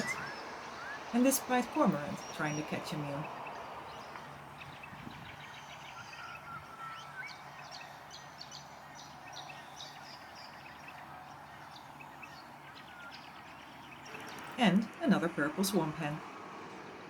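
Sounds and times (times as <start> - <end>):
whistled bird note: 0.0 - 3.3, 4.8 - 13.2
birds chirping and twittering: 0.0 - 17.0
distant machinery hum: 0.0 - 17.0.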